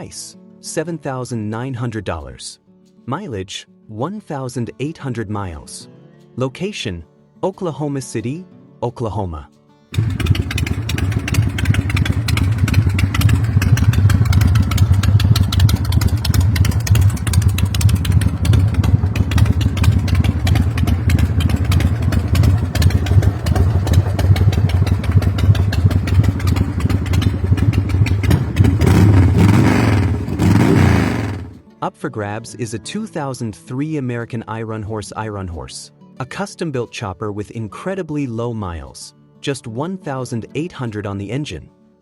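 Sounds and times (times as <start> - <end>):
motorcycle engine rumbling: 10.0 - 31.6.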